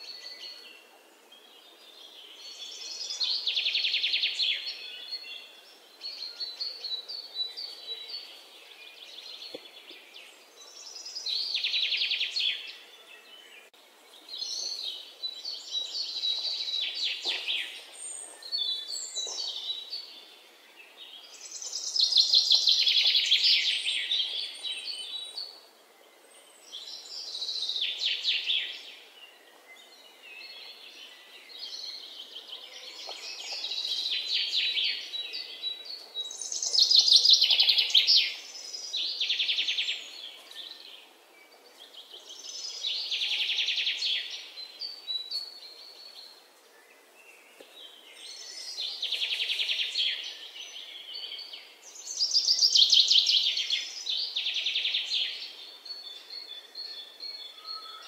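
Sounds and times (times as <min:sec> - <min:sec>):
songbird singing: 0:00.0 - 0:58.0.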